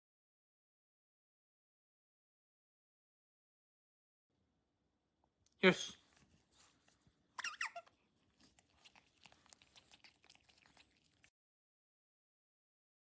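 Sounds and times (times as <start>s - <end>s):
otter squeaking: 7.4s - 8.0s.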